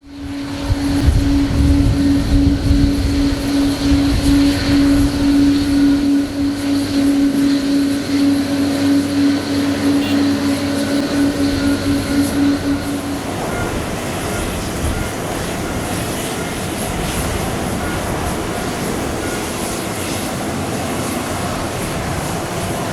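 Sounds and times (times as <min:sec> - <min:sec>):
rumble: 0:00.0 - 0:15.0
jet airliner engine hum: 0:00.0 - 0:22.9.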